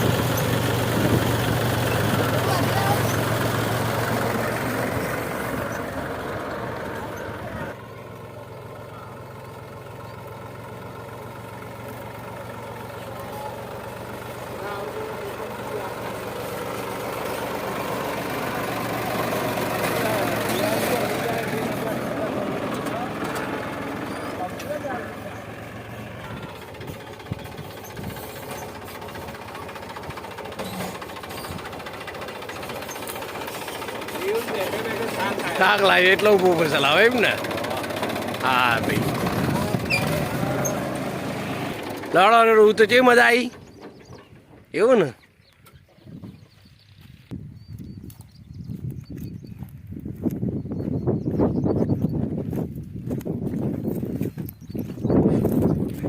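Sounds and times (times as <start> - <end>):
tractor engine humming: 0.0 - 56.0.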